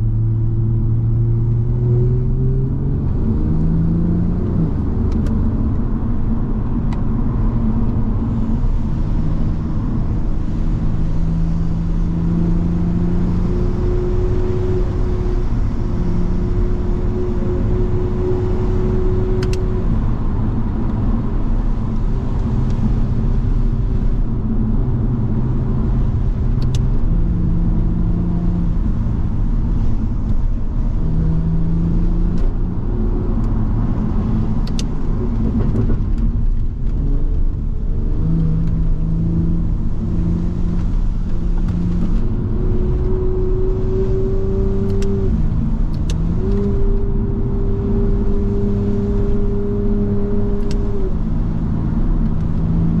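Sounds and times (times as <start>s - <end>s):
car engine shifting gears: 0.0s - 53.0s.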